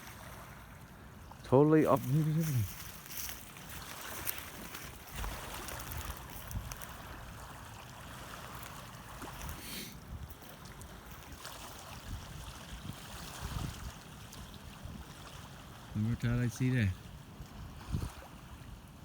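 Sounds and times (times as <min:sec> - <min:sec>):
water washing along shore: 0:00.0 - 0:19.0
wind buffeting microphone: 0:01.9 - 0:07.5, 0:11.3 - 0:16.4, 0:17.0 - 0:18.8.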